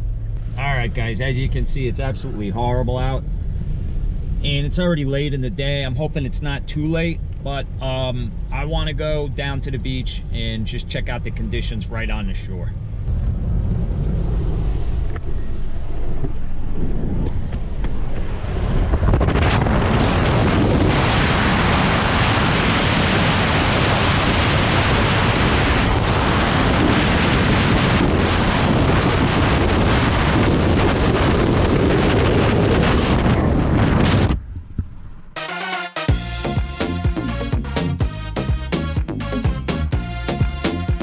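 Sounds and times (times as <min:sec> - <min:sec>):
storm wind gusting: 0:12.9 - 0:35.4.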